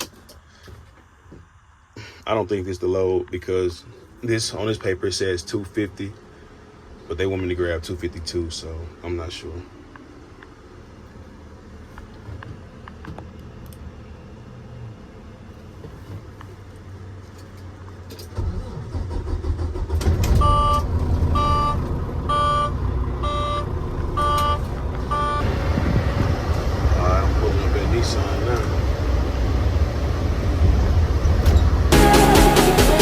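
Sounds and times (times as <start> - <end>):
diesel truck engine running: 3.8 - 33.0
cab warning beep: 20.3 - 25.5
low rumble: 20.4 - 32.0.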